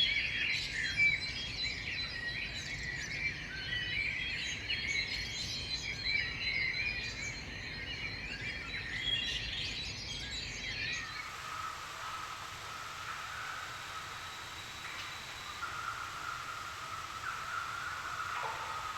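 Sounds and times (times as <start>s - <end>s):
birds chirping and trilling: 11.0s - 18.9s
faint low background hiss: 11.0s - 18.9s.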